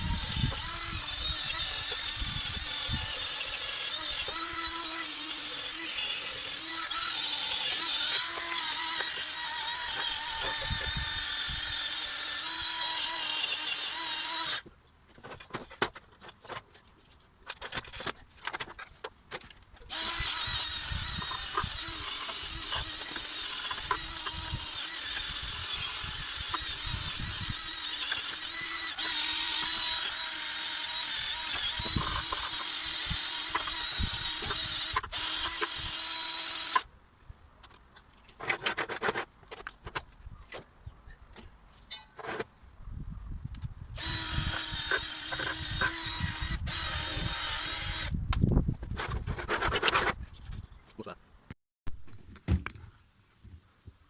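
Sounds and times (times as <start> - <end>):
power tool running: 0.0 - 14.6, 19.9 - 36.8, 44.0 - 48.1.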